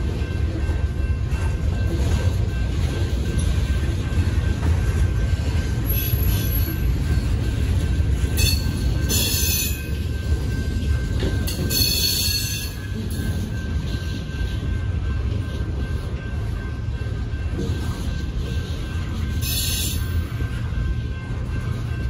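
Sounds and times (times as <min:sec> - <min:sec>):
train wheels squealing: 0:05.7 - 0:07.6, 0:08.4 - 0:14.7, 0:17.6 - 0:20.6.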